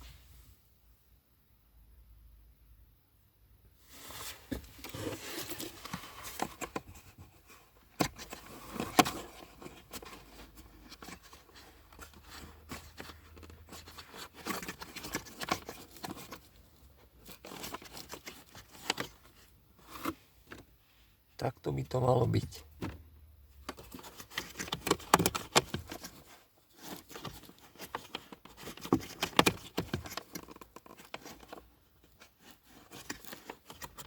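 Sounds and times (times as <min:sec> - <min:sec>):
hands clicking and tapping parts: 0:23.6 - 0:34.0.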